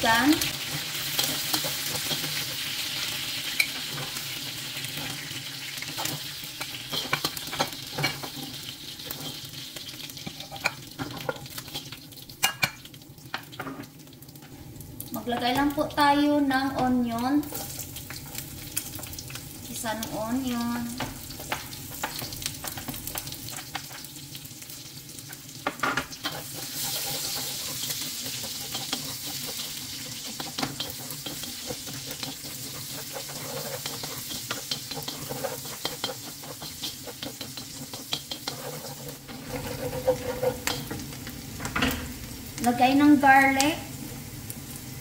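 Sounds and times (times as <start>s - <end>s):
onion sizzling in hot oil: 0.0s - 45.0s
wooden spatula scraping pan: 26.2s - 41.1s.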